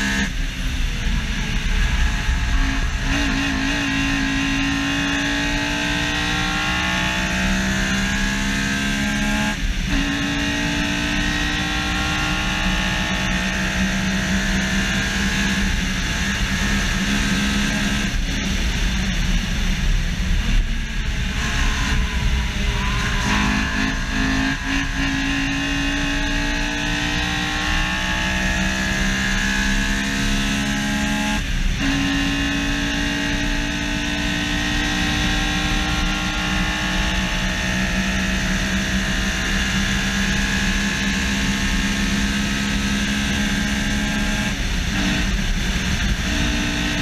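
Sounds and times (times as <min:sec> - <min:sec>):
car engine revving at high speed: 0:00.0 - 0:47.0
wind and road noise: 0:00.0 - 0:47.0.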